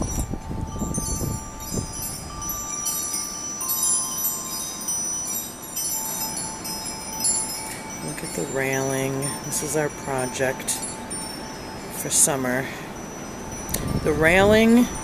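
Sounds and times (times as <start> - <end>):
wind chimes ringing: 0.0 - 15.0.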